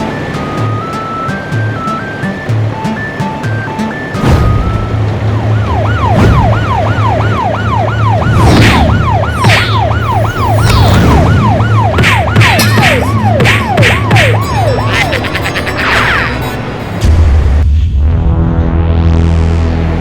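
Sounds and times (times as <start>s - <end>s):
cartoon siren wailing: 4.4s - 17.0s.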